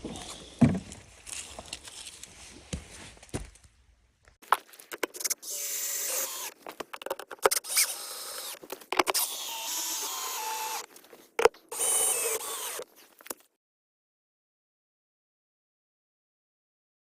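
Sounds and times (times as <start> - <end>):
plastic parts clicking and knocking: 6.7 - 7.6, 8.5 - 9.2.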